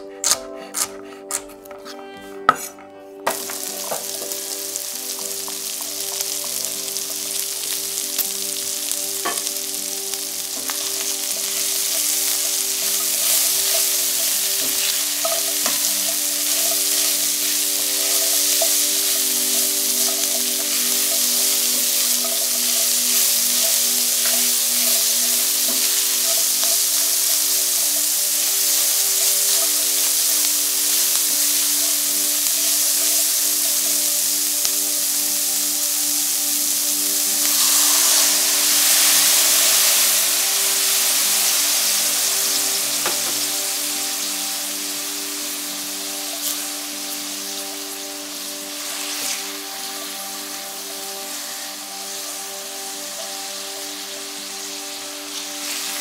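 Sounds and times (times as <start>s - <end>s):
spatula scraping a pan: 0.2s - 2.8s
food sizzling in a frying pan: 2.5s - 56.0s.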